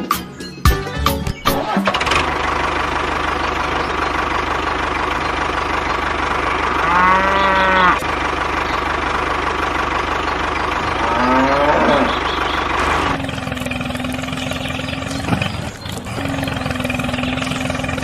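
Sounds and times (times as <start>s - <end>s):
drawn-out pitched calls: 3.1s - 18.0s.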